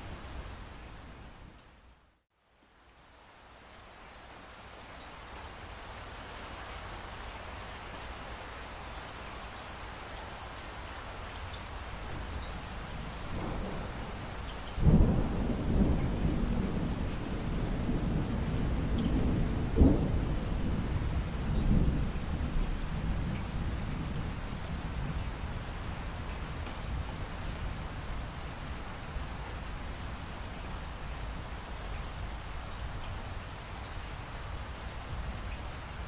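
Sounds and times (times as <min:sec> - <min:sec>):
steady rain falling: 0:00.0 - 0:36.0
thunder rumbling: 0:13.3 - 0:25.2.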